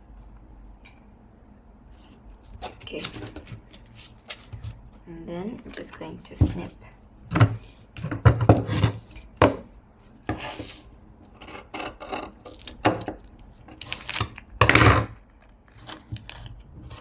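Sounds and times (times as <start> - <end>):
paper and tape handling: 2.0 - 6.4, 12.4 - 14.6, 15.2 - 17.0.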